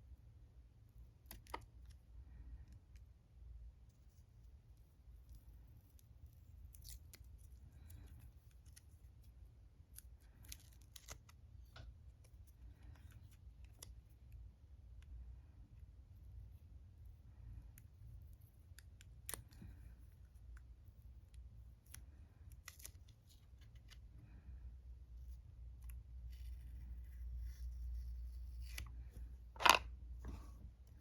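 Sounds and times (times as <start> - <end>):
brush and paint pans clicking: 29.6 - 29.8.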